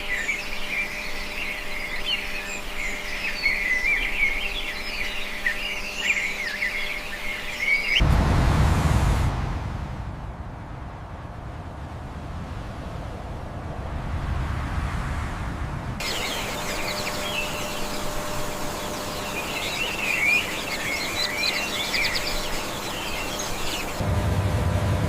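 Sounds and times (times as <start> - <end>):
birds chirping: 0.0 - 8.0, 16.0 - 24.0
low rumble: 8.0 - 16.0, 24.0 - 25.0.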